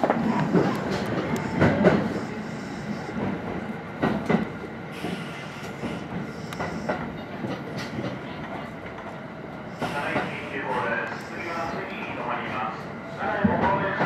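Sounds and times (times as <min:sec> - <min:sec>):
electric train running: 0:00.0 - 0:08.2.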